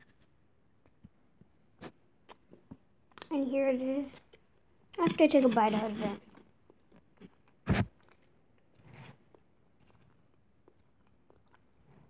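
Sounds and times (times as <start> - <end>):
chewing chocolate: 6.3 - 12.0.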